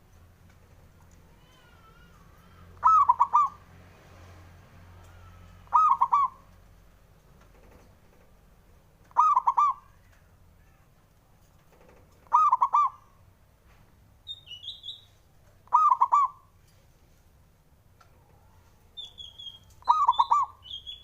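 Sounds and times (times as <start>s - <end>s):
dove cooing: 2.8s - 3.6s, 5.6s - 6.4s, 9.1s - 9.9s, 12.2s - 13.2s, 15.7s - 16.5s, 19.8s - 20.6s
small bird chirp: 9.1s - 10.2s, 14.2s - 16.5s, 18.9s - 21.0s.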